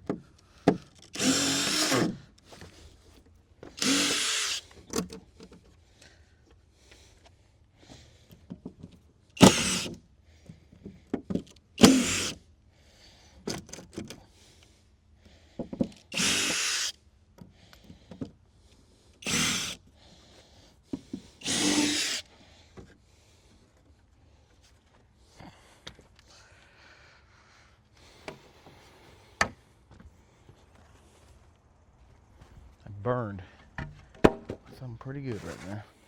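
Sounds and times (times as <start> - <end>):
power drill backing out screws: 0.6 - 2.7, 3.6 - 5.4, 9.4 - 10.0, 11.4 - 12.4, 15.7 - 16.9, 19.2 - 19.8, 21.0 - 22.3.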